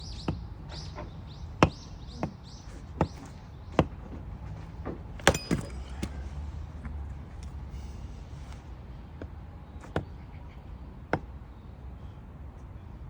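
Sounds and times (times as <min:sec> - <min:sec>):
hatchet chopping firewood: 0:00.0 - 0:04.2, 0:04.8 - 0:06.2, 0:11.1 - 0:11.3.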